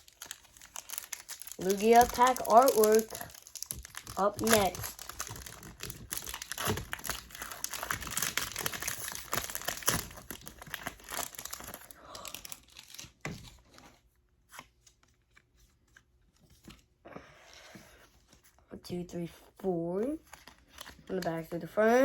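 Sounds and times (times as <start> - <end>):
foil wrapper crinkling: 0.0 - 13.3.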